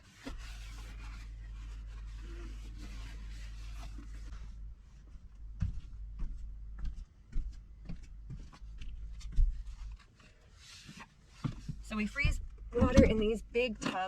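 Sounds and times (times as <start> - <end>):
low steady hum: 0.0 - 10.1, 11.3 - 14.0
knocks and clunks of packing: 11.4 - 14.0.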